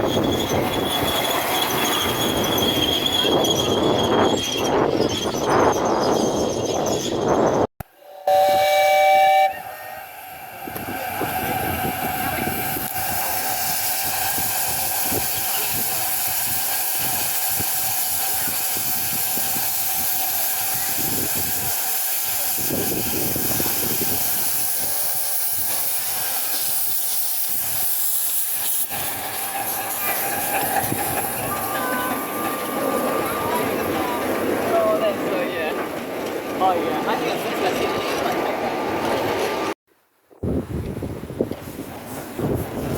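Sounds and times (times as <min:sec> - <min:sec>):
two-tone steam whistle blast: 0:07.9 - 0:16.3
steam hissing: 0:08.2 - 0:35.4.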